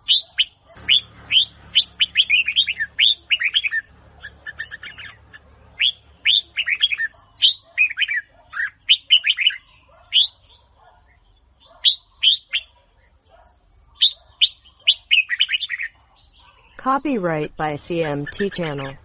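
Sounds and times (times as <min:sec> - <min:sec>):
bulbul singing whistled notes: 0:00.0 - 0:05.2.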